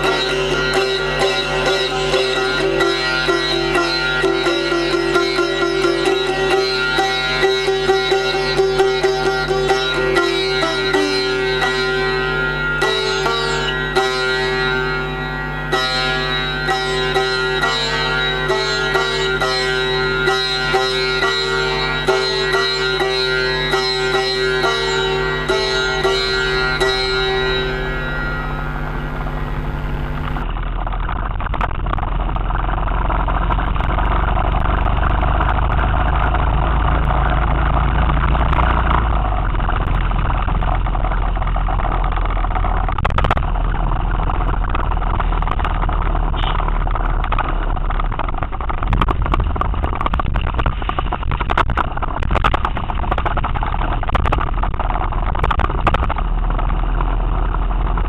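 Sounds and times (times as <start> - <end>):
sitar tune: 0.0 - 58.0
motorcycle engine running: 24.2 - 58.0.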